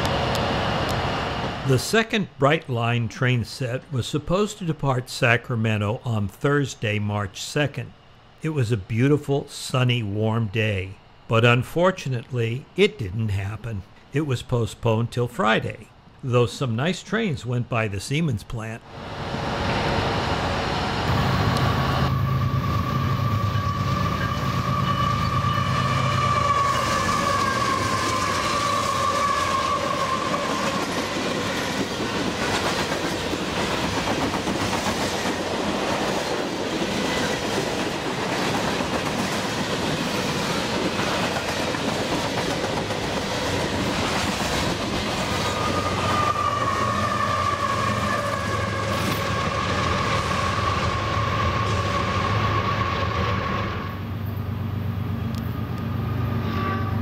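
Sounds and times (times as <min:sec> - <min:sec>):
long high-pitched squeal: 0:19.0 - 0:31.1, 0:45.4 - 0:54.2
train cars clattering on rails: 0:26.5 - 0:48.2.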